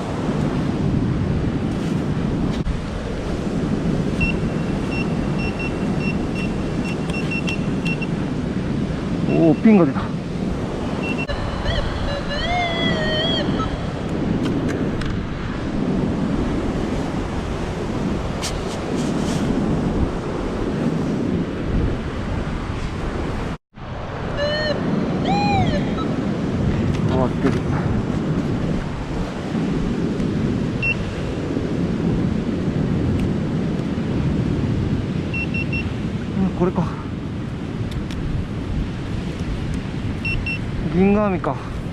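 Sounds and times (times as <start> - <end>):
surf washing on shore: 0.0 - 41.9
wind on microphone: 0.0 - 41.9
metal detector warbling tone: 4.2 - 8.1, 11.0 - 14.0, 24.3 - 26.2, 40.2 - 40.6
short high beep: 4.2 - 8.1, 11.0 - 12.6, 30.8 - 31.0, 35.4 - 35.9.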